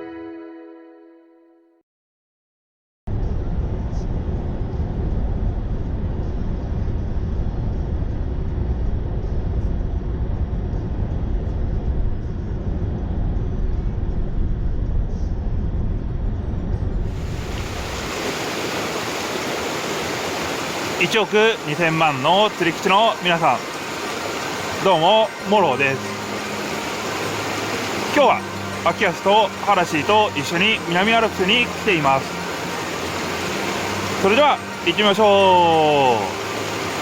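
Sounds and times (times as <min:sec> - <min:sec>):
low rumble: 0:03.1 - 0:18.2
stream water flowing: 0:17.1 - 0:37.0.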